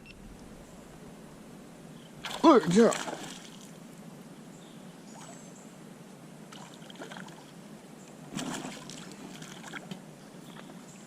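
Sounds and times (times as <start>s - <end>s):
water trickling and lapping: 1.9s - 4.3s, 5.0s - 5.6s, 6.4s - 11.0s.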